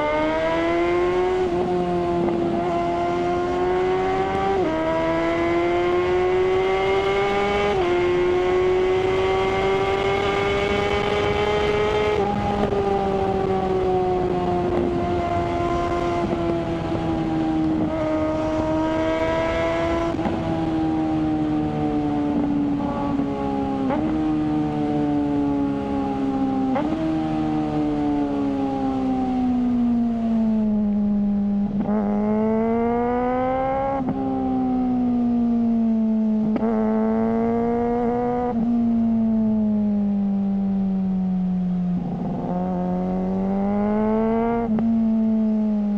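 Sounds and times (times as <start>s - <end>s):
motorcycle engine running: 1.7s - 27.0s.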